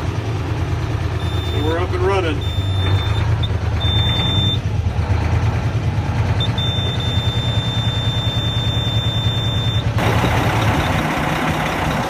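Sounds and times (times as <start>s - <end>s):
diesel truck engine rumbling: 0.0s - 12.0s
high-pitched beep tone: 2.4s - 4.6s, 6.4s - 9.9s.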